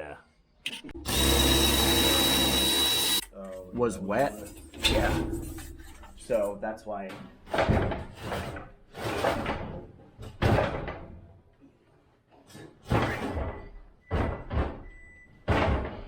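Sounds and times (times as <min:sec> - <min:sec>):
sharp bangs and knocks: 0:12.8 - 0:16.0.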